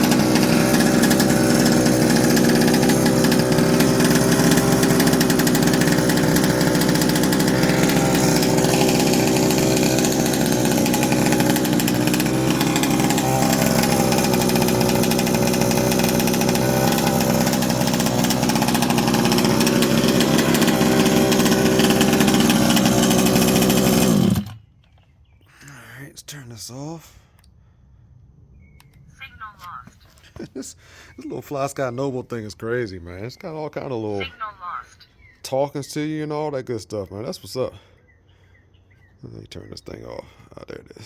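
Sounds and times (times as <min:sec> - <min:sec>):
two-stroke engine running: 0:00.0 - 0:24.6.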